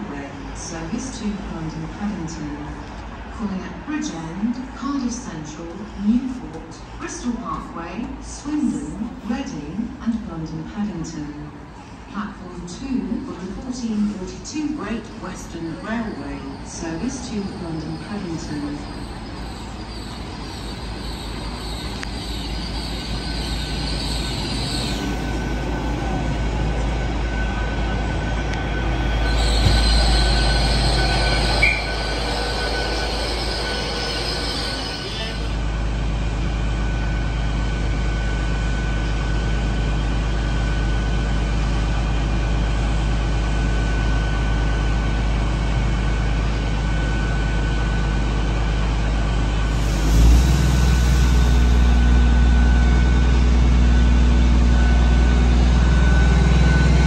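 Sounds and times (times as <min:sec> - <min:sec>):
train low hum: 0:00.0 - 0:57.0
diesel engine whine: 0:15.1 - 0:57.0
train brakes squealing: 0:15.4 - 0:35.7, 0:49.6 - 0:57.0.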